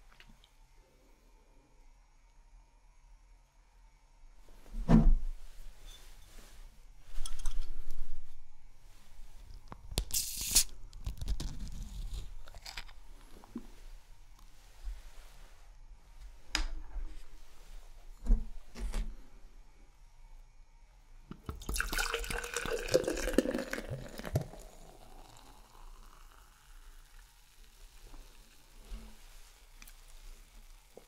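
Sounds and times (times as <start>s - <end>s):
beer pouring into a glass: 21.4s - 28.8s.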